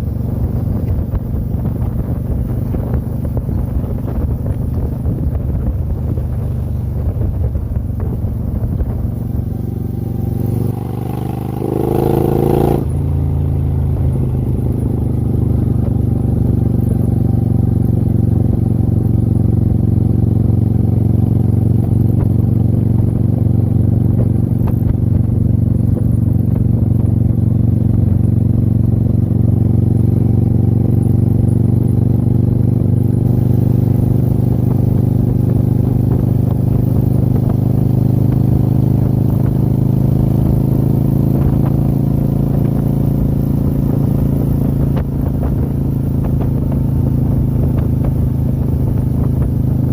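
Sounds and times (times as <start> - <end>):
motorcycle engine running: 0.0 - 49.9
wind noise: 0.0 - 49.9.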